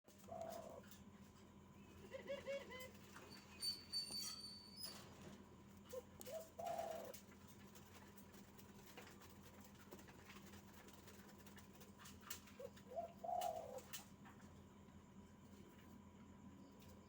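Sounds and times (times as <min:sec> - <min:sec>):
dove cooing: 0:00.1 - 0:01.0, 0:01.8 - 0:03.3, 0:05.9 - 0:07.3, 0:12.4 - 0:14.0.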